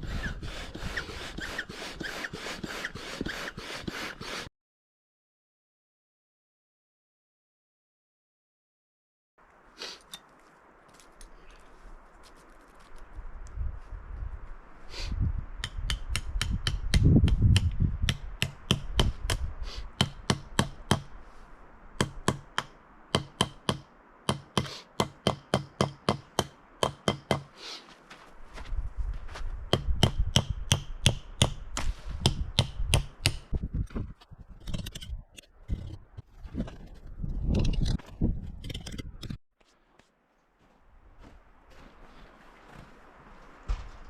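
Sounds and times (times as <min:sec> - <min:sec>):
wind rumbling on microphone: 0:00.0 - 0:01.5, 0:11.6 - 0:22.0, 0:28.4 - 0:39.4
hammer driving tent stakes: 0:15.6 - 0:21.1, 0:22.0 - 0:27.6, 0:29.8 - 0:33.5.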